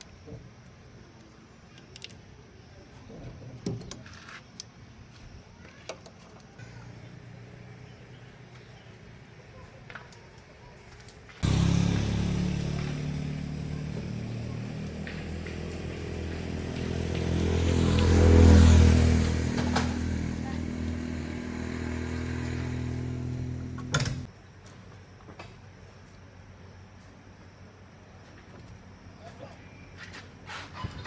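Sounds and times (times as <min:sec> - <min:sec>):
car engine running: 0:18.7 - 0:24.3.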